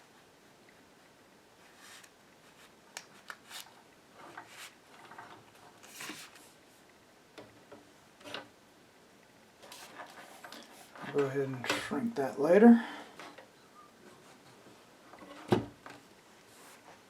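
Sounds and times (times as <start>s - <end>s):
clicks and rustles of wire: 2.9s - 6.5s, 9.6s - 11.9s.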